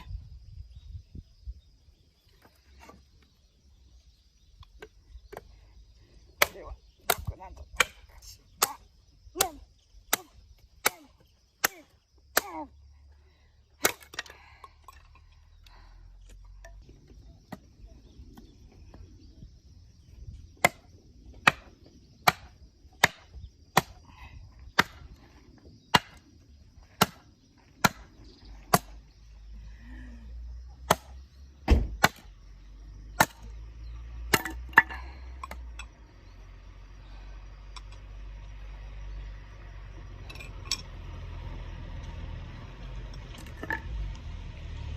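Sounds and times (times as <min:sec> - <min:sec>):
axe chopping wood: 0:06.4 - 0:12.6, 0:13.8 - 0:14.3, 0:20.6 - 0:24.0, 0:24.7 - 0:25.2, 0:25.9 - 0:26.2, 0:26.9 - 0:29.0, 0:30.8 - 0:32.3, 0:33.1 - 0:33.5, 0:34.2 - 0:35.7.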